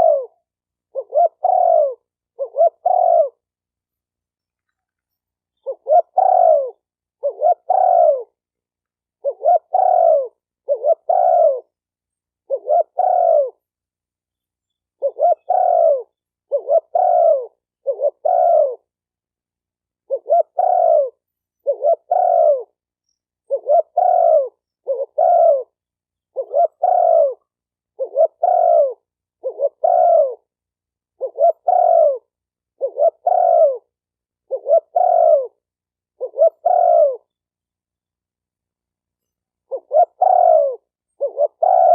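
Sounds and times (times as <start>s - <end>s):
dove cooing: 0.0s - 3.6s, 5.6s - 8.4s, 9.1s - 11.8s, 12.4s - 13.7s, 15.0s - 19.0s, 20.0s - 22.8s, 23.4s - 37.3s, 39.6s - 41.9s.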